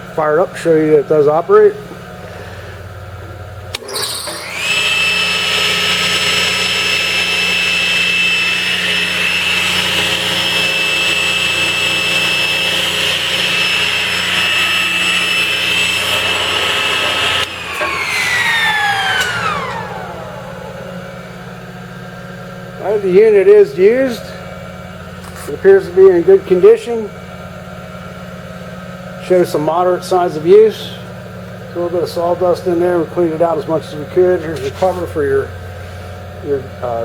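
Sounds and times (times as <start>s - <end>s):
table saw motor whine: 3.7s - 27.1s
table saw switch click: 19.0s - 19.8s.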